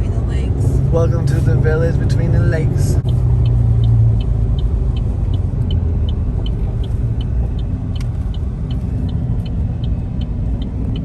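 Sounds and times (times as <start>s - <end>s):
car road and engine rumble: 0.0s - 11.0s
faint regular ticking: 3.0s - 11.0s.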